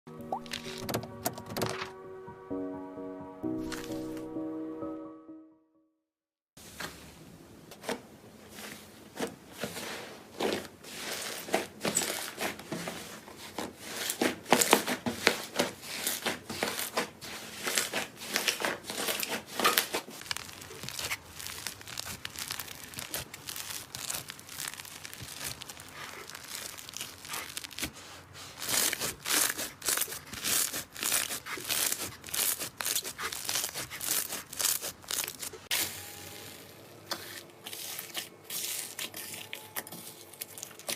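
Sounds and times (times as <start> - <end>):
slime crackling and clicking: 19.7 - 27.9.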